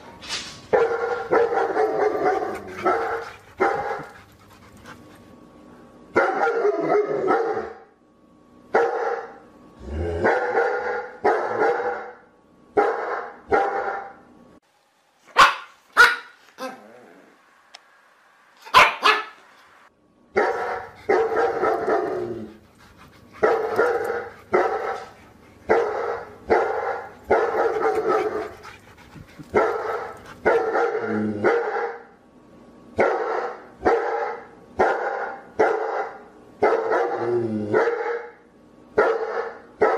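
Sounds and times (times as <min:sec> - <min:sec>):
dog barking: 0:00.7 - 0:04.1, 0:06.2 - 0:07.8, 0:08.8 - 0:09.4, 0:10.2 - 0:12.2, 0:12.8 - 0:14.2, 0:15.3 - 0:16.4, 0:18.7 - 0:19.4, 0:20.4 - 0:22.4, 0:25.7 - 0:28.6, 0:29.6 - 0:32.1, 0:33.0 - 0:38.4, 0:39.0 - 0:39.9.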